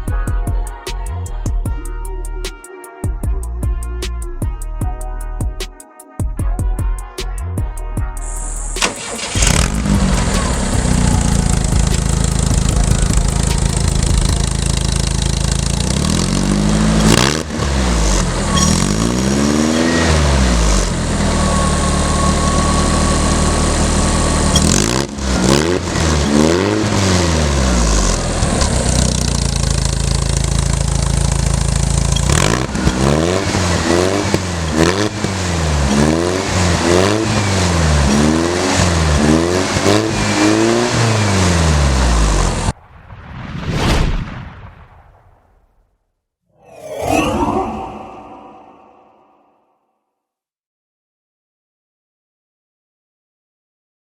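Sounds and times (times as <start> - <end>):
car engine revving: 8.7 - 28.5, 31.5 - 41.7.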